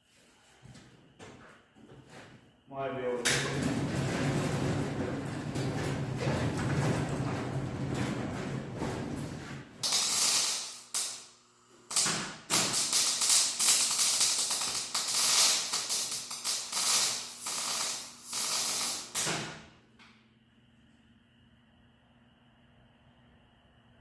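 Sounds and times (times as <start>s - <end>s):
electric arc welder crackling: 9.8s - 19.8s.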